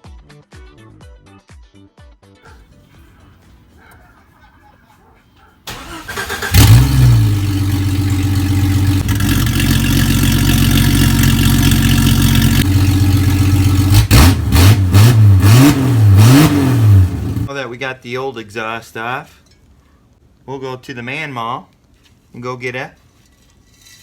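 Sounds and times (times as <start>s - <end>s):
car engine starting and idling: 5.6s - 17.5s
engine revving: 5.7s - 17.5s
exhaust rattle: 5.7s - 17.5s.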